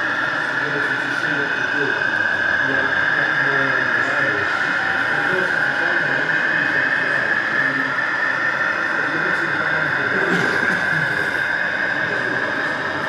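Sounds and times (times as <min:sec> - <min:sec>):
crowd chatter: 0:00.0 - 0:13.0.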